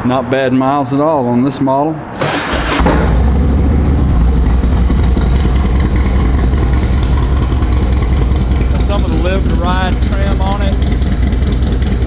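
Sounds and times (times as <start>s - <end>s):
motorcycle engine idling: 2.2s - 12.0s.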